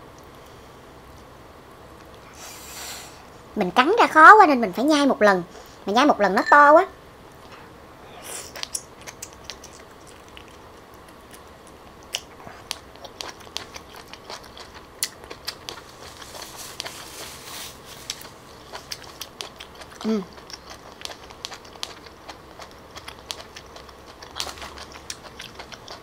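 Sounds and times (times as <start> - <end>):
person chewing clam meat: 8.5 - 26.0.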